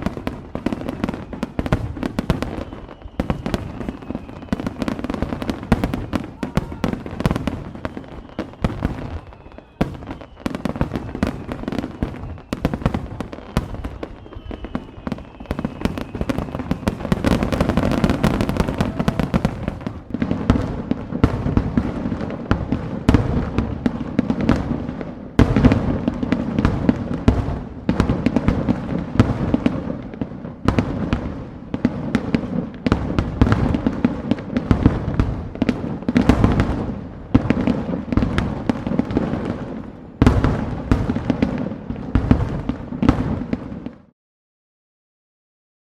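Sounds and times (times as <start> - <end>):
fireworks bangs and crackles: 0.0 - 44.1
faint falling whistles: 0.7 - 19.9.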